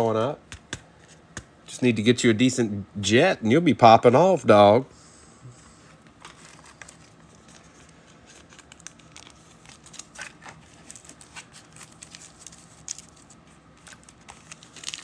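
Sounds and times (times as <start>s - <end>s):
foil wrappers crinkling: 6.1s - 15.0s.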